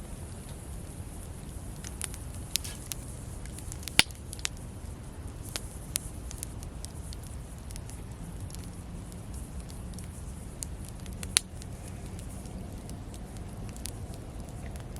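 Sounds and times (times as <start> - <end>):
campfire crackling: 0.1 - 14.9
loud pop from fire: 1.9 - 4.5.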